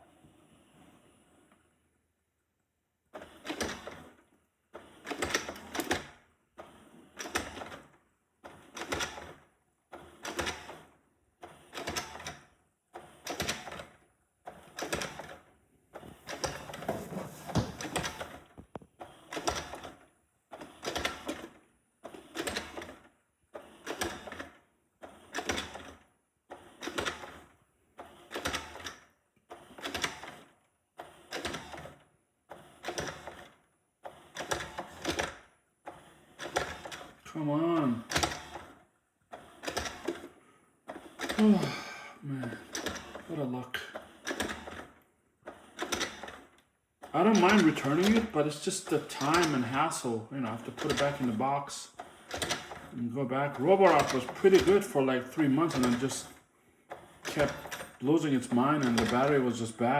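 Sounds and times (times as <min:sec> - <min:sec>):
robot vacuum motors whirring: 0:14.5 - 0:23.0, 0:37.8 - 0:40.3, 0:40.9 - 0:59.9.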